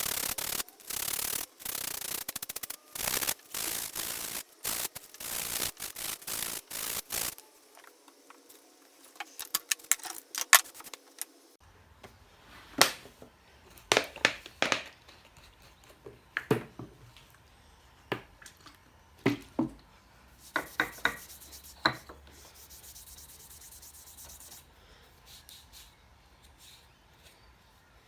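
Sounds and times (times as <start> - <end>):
hiss: 0.0 - 7.5.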